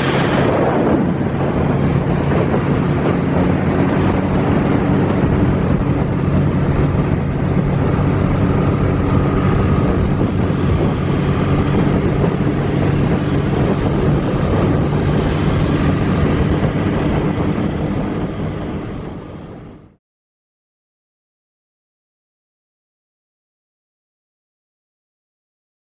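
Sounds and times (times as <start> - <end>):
motorcycle engine running: 0.0 - 20.0
wind noise: 0.0 - 20.0.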